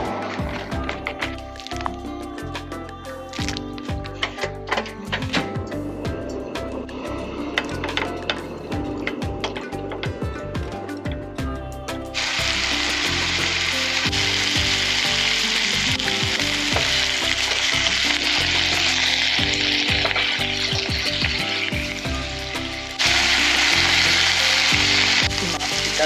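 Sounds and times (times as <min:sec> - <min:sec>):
food sizzling in a pan: 0:12.2 - 0:26.0.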